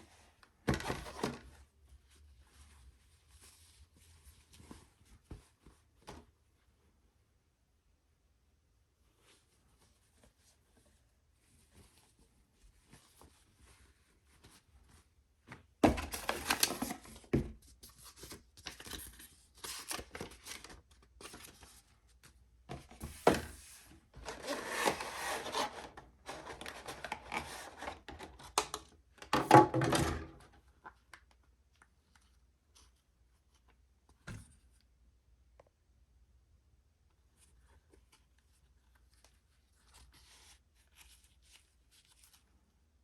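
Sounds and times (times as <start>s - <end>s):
packaging rustling and scraping: 15.9s - 17.3s, 22.9s - 28.6s.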